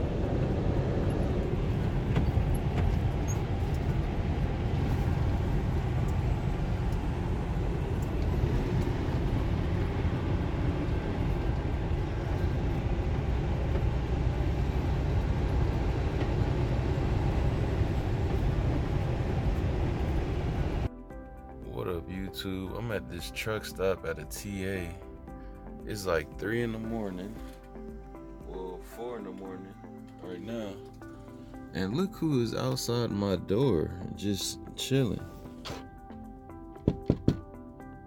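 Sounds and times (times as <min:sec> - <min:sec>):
truck engine drone: 0:00.0 - 0:20.9
tyre and road noise: 0:00.0 - 0:20.9.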